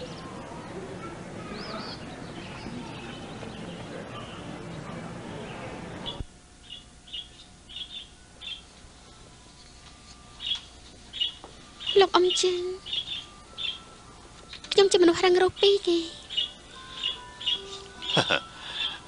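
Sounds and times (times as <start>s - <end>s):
busy background wash: 0.0s - 19.0s
bird chirping: 5.4s - 8.7s, 9.5s - 14.0s, 15.6s - 19.0s.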